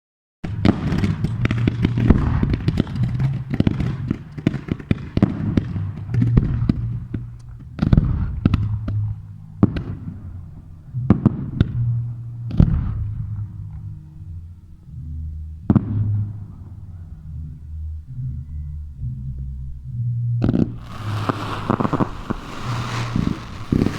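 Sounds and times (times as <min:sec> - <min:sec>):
low rumble: 0:00.5 - 0:04.3, 0:05.2 - 0:23.9
fireworks bangs: 0:00.5 - 0:10.2, 0:20.5 - 0:23.9.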